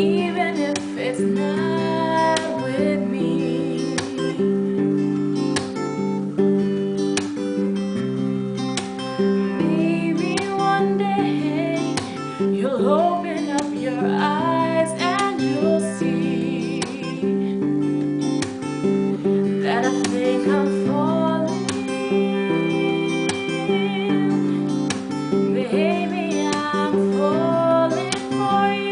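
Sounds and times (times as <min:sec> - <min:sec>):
person singing: 0:00.0 - 0:04.8, 0:09.5 - 0:18.0, 0:19.2 - 0:28.9
acoustic guitar strumming: 0:00.0 - 0:28.9.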